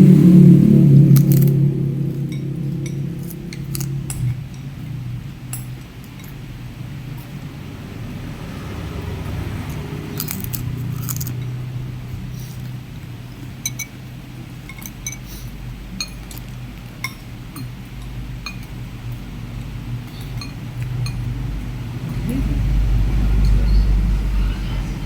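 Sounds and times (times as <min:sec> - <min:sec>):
steady low hum: 0:00.0 - 0:25.0
spoon clinking against bowl: 0:13.6 - 0:14.0, 0:14.6 - 0:15.4, 0:16.0 - 0:18.8, 0:20.1 - 0:21.3.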